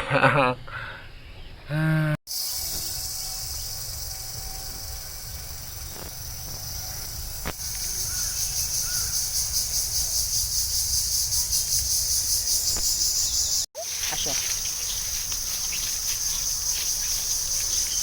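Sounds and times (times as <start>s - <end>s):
insects buzzing: 2.3s - 18.0s
bird chirps: 6.7s - 18.0s.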